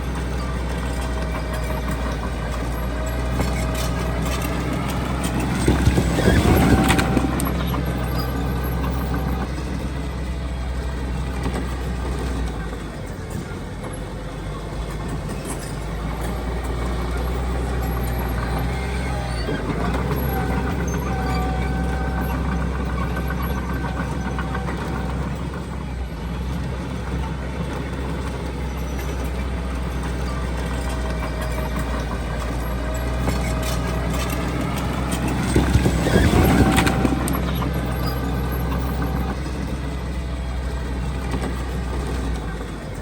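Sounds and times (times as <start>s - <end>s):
heavy machinery diesel engines: 0.0s - 43.0s.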